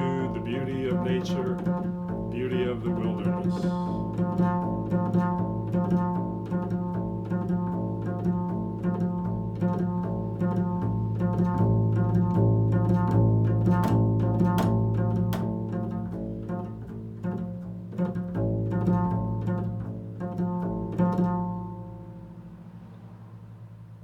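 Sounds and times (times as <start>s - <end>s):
sustained low drone: 0.0s - 4.5s
plucked string instrument: 0.0s - 23.1s.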